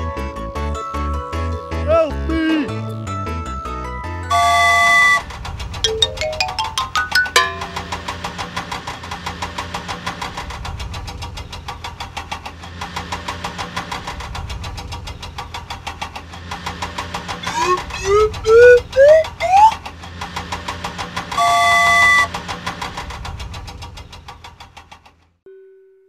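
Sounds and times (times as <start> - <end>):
cartoon toy engine chugging: 4.3 - 8.3, 17.1 - 24.5
rising notes: 5.9 - 8.3, 17.4 - 19.8
loud rising swoops: 17.4 - 19.8.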